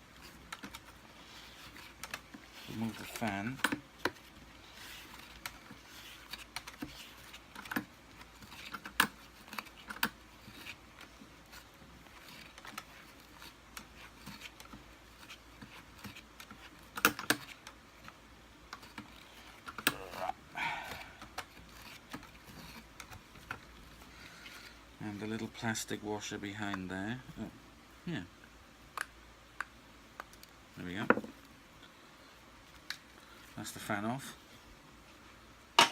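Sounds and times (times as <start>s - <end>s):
hand tools clicking and scraping: 18.8s - 23.6s.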